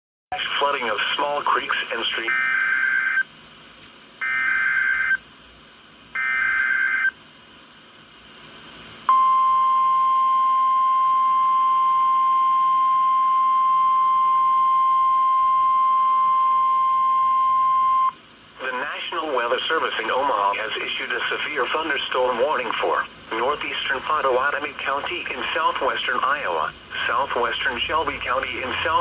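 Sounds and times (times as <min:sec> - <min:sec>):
steady warning alarm tone: 0:02.3 - 0:03.3, 0:04.2 - 0:05.2, 0:06.2 - 0:07.2.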